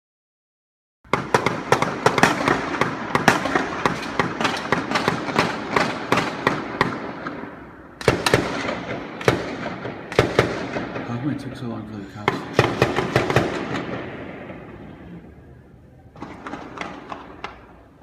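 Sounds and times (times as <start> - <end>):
rapid gunfire: 1.1 - 7.4, 8.0 - 11.2, 12.3 - 14.2, 16.2 - 17.6.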